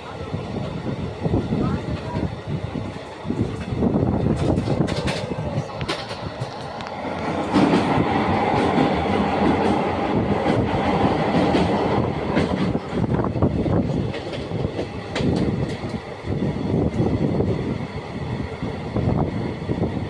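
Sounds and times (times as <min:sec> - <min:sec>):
train rumbling on bridge: 0:00.0 - 0:20.0
wheels clattering over rails: 0:03.4 - 0:13.2.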